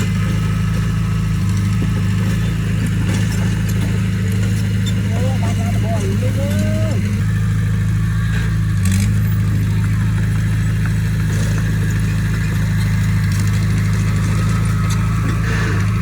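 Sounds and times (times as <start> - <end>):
diesel engine running steadily: 0.0 - 16.0.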